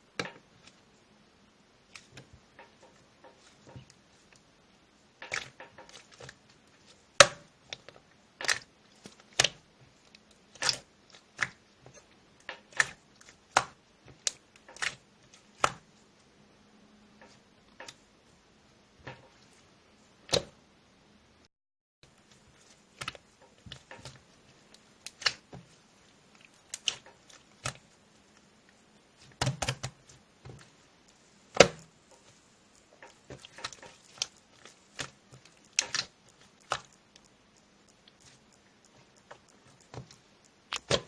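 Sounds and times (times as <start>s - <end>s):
irregular clicks and taps: 29.4s - 41.0s.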